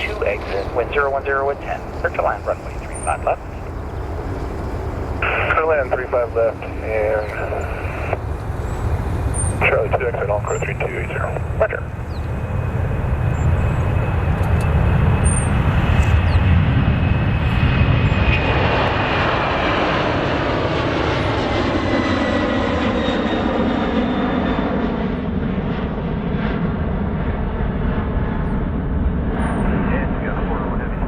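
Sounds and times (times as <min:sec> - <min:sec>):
airliner engines passing: 0:00.0 - 0:31.0.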